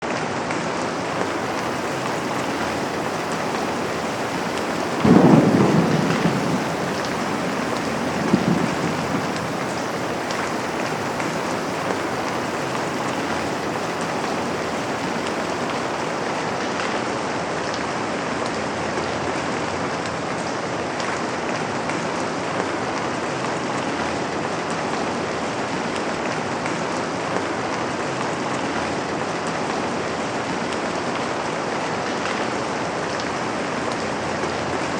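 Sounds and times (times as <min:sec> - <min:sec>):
rain on a window: 0:00.5 - 0:17.1
thunder rumbling: 0:00.7 - 0:16.7.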